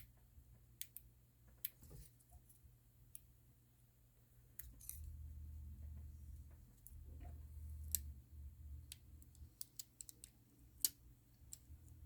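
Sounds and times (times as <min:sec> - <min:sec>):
small clicks and taps of tools: 0:00.0 - 0:02.5, 0:08.8 - 0:12.0.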